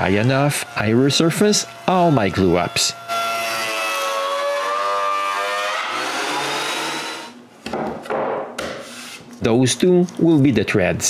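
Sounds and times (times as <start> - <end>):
wood planer whining: 0.0 - 7.4.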